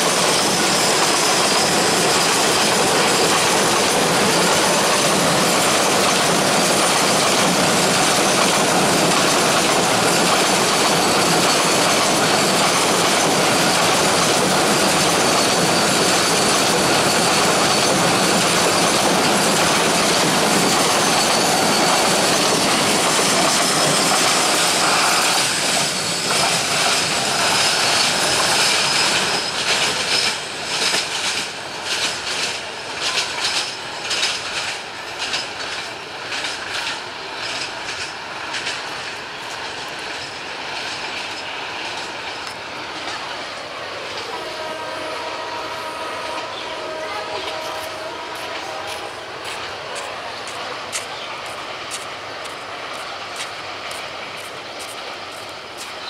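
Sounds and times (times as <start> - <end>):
high wheel squeal: 0.0 - 31.3, 44.1 - 51.3
freight train wheels rumbling on rail: 0.0 - 56.0
wheels clacking over rail joints: 0.0 - 56.0.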